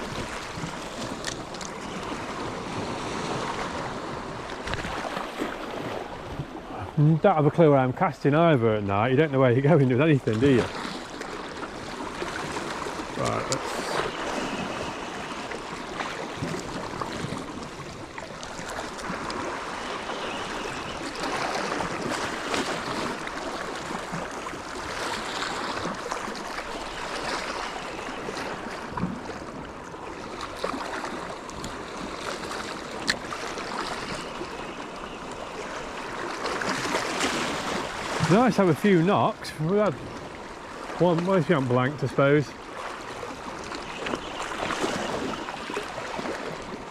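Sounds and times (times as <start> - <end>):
sea water washing against rocks: 0.0 - 8.4, 9.2 - 46.9.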